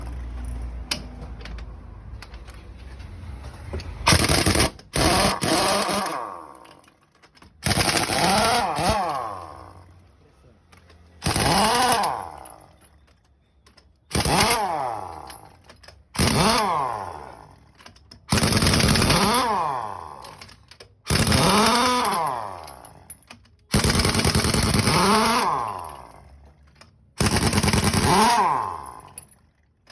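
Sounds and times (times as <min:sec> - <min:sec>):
truck engine revving: 0:27.3 - 0:29.1.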